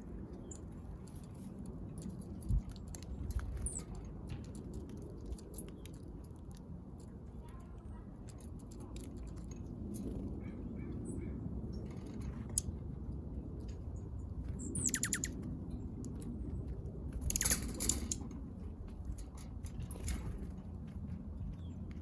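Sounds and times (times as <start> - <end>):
low background rumble: 0.0 - 22.0
bird high call sweeping downward: 14.6 - 15.4.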